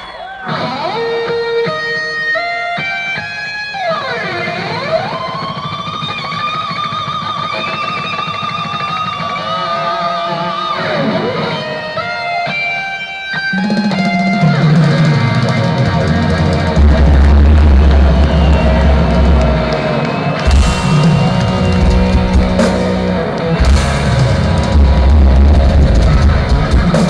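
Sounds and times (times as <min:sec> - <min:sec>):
electric guitar solo: 0:00.0 - 0:27.0
bass and drums: 0:13.6 - 0:27.0.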